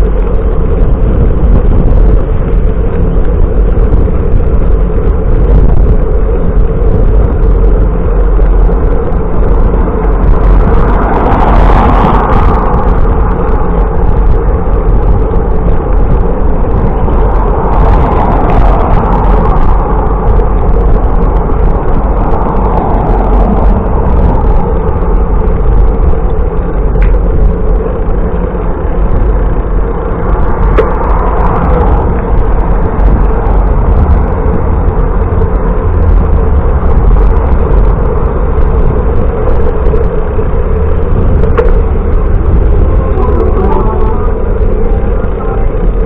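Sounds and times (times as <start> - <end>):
road noise: 0.0 - 46.0
wind buffeting microphone: 0.0 - 46.0.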